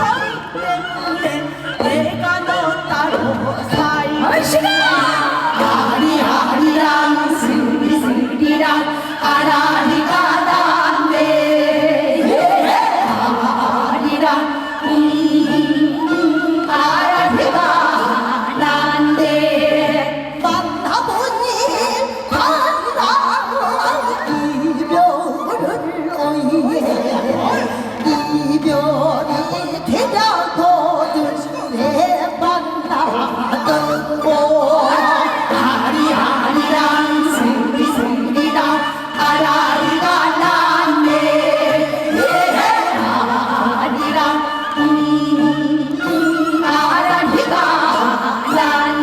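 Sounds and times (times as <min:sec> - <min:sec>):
woman singing with vibrato: 0:00.0 - 0:49.0
instrumental accompaniment: 0:24.0 - 0:49.0.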